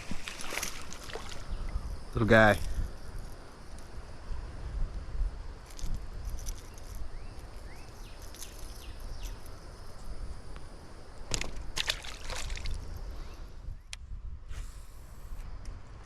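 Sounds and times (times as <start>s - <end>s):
water splashing and sloshing: 0.0s - 1.6s, 11.3s - 13.0s.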